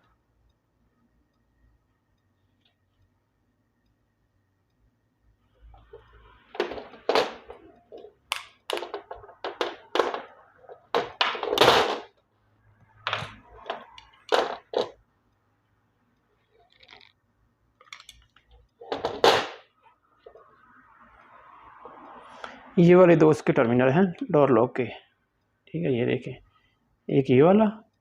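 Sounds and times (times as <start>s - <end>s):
handling knocks and clicks: 5.8s - 12.2s, 13.1s - 15.0s, 16.5s - 17.2s, 17.8s - 19.6s.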